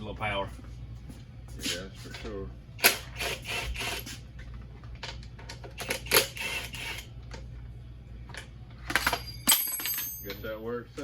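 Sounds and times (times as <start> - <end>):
steady low hum: 0.0 - 11.0
hand tools and metal parts rattling: 8.3 - 11.0.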